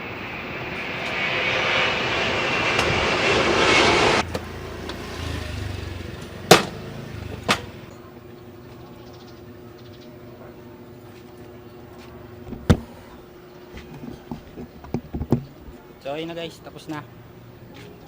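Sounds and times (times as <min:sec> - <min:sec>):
scooter engine revving: 0:04.2 - 0:07.9.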